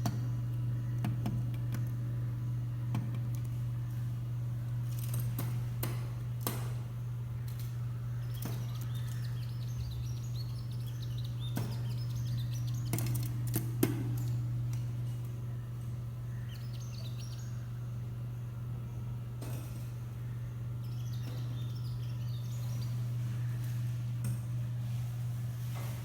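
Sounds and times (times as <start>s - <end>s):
steady low hum: 0.0s - 26.0s
small birds chirping: 6.9s - 19.2s, 19.8s - 24.1s.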